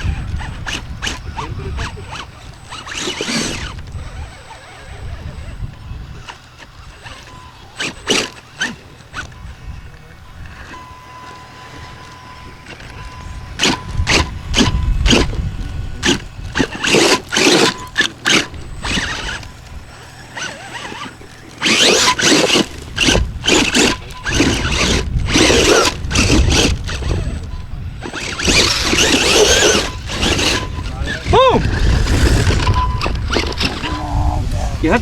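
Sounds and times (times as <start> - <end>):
remote control car motor revving: 0.0 - 35.0.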